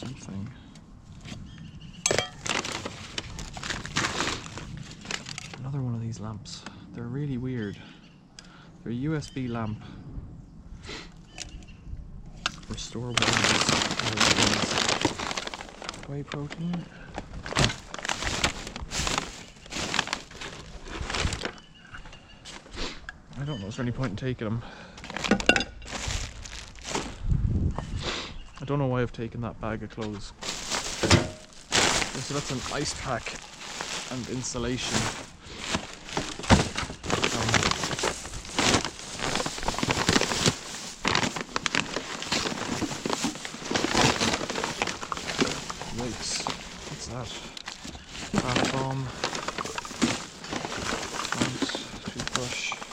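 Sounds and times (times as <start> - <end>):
rubbish knocking and clattering: 2.1 - 4.6, 30.4 - 34.2, 34.8 - 47.1
plastic bags rustling: 2.1 - 5.7, 12.6 - 22.7, 25.0 - 27.3, 30.3 - 52.9.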